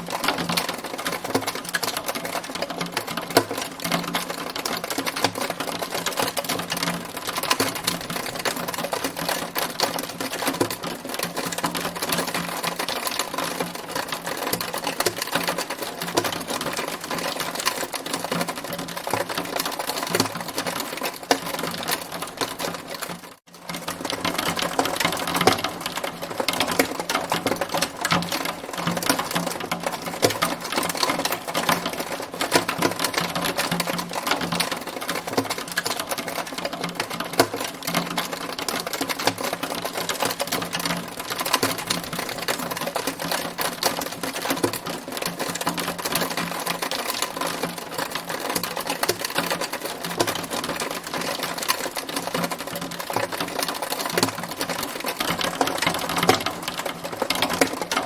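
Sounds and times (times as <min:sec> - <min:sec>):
hailstones pelting hard surface: 0:00.0 - 0:58.0.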